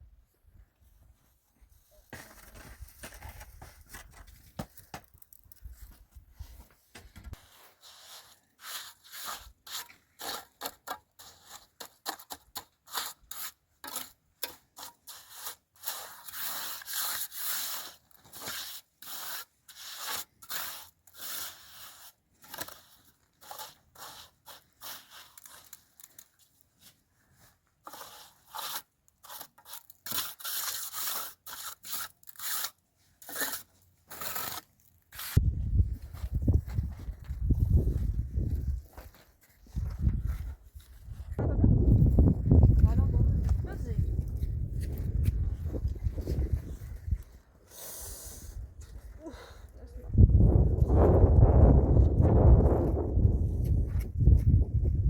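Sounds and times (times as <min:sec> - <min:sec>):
scraping and rubbing strokes: 0:07.3 - 0:41.4.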